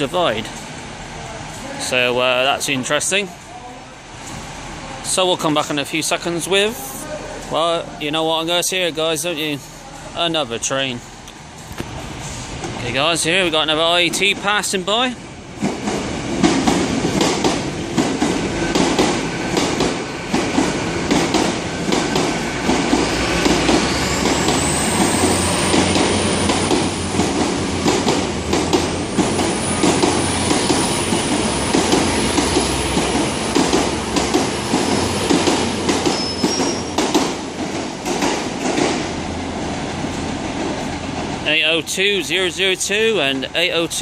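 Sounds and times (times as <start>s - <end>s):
train engine rumbling: 0.0s - 44.0s
wheels clicking over rail joints: 25.7s - 41.5s.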